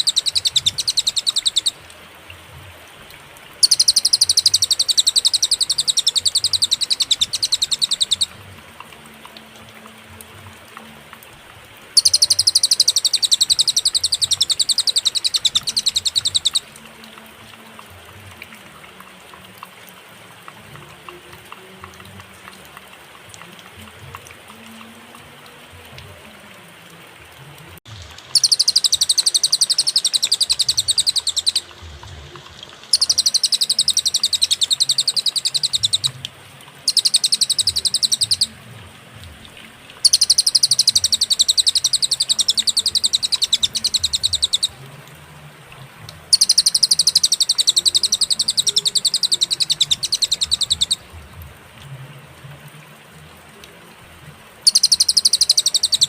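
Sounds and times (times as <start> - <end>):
bird singing rapid trills: 0.0 - 1.8, 3.6 - 8.4, 12.0 - 16.8, 28.3 - 31.8, 32.9 - 36.2, 36.8 - 38.6, 40.0 - 44.8, 46.3 - 51.0, 54.6 - 56.0.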